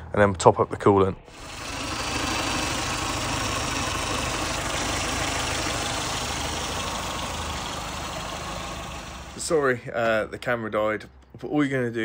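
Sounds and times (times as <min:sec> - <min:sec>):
car engine idling: 0:01.3 - 0:09.6.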